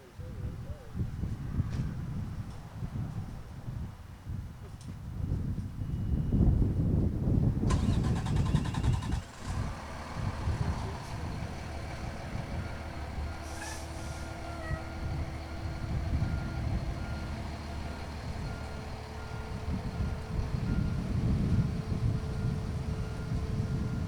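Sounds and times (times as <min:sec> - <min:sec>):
diesel engine rumbling: 0:07.4 - 0:24.0
reversing alarm beeping: 0:14.0 - 0:24.0.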